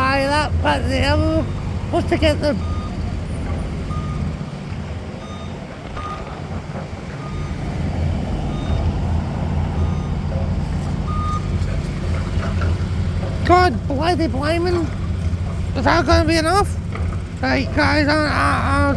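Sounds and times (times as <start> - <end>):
reversing alarm beeping: 0.0 - 4.4, 5.2 - 6.5, 7.1 - 15.0
vehicle engine running: 0.0 - 18.9.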